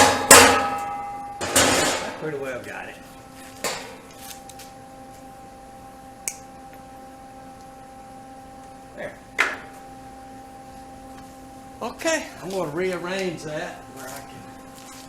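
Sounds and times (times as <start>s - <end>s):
hammer blows on sheet metal: 0.0s - 2.2s
faint steady hum: 0.0s - 15.0s
small click: 6.2s - 6.8s.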